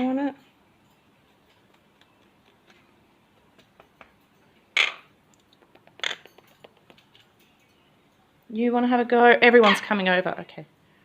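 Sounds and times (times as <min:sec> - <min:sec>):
parrot beak clicking on wood: 0:04.8 - 0:07.2.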